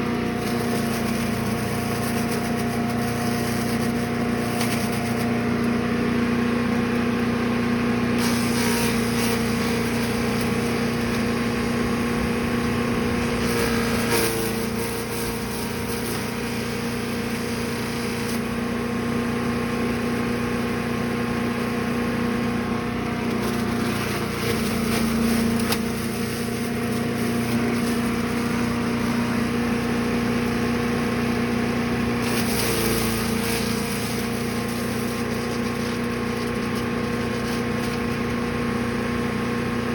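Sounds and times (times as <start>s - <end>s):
wood chipper engine running: 0.0s - 39.9s
hissy crackle of shredding material: 0.1s - 5.8s, 8.1s - 39.7s.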